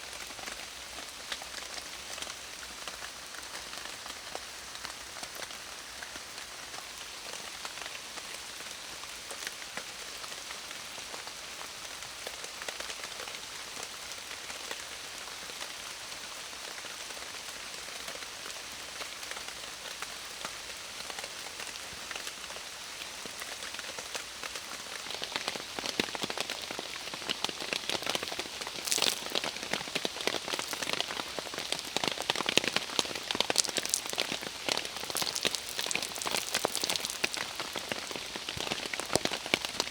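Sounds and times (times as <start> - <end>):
heavy rain hissing: 26.9 - 39.9
sharp close raindrop hits: 27.8 - 39.9.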